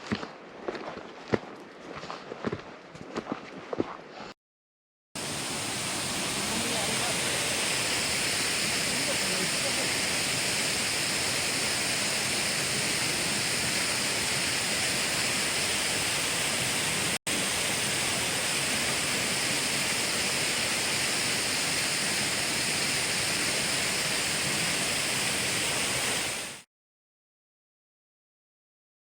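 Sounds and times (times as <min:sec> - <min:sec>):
waterfall rushing: 0:05.2 - 0:26.6.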